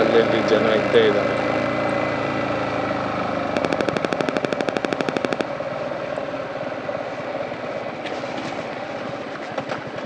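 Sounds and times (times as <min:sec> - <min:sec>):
engine and road noise: 0:00.0 - 0:10.0
motorcycle exhaust popping: 0:01.2 - 0:06.4.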